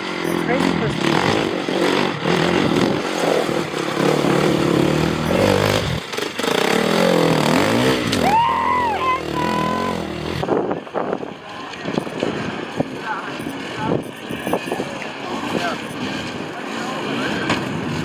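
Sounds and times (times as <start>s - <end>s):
dirt bike engine revving: 0.0s - 10.6s, 12.1s - 18.0s.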